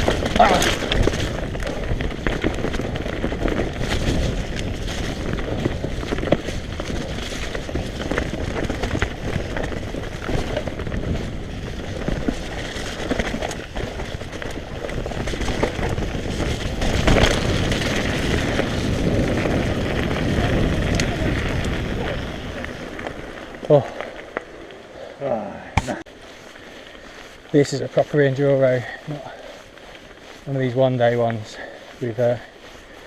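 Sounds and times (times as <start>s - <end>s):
wind rumbling on microphone: 0.0s - 25.0s
bike tyre noise: 0.0s - 33.0s.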